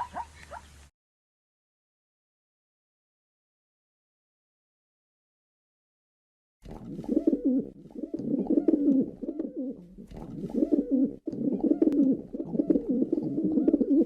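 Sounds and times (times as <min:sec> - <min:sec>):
pigeon cooing: 0:00.0 - 0:00.7, 0:06.8 - 0:14.0.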